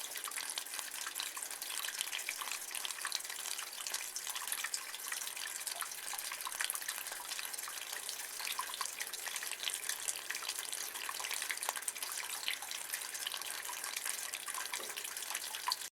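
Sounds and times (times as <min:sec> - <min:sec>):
rainwater trickling in gutter: 0:00.0 - 0:15.9
small drips and splashes: 0:00.0 - 0:15.9.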